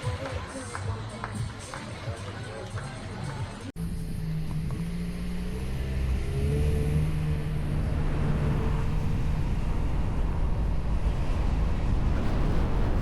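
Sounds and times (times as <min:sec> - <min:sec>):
engine running under load: 0:03.8 - 0:13.0
wind noise: 0:06.3 - 0:13.0.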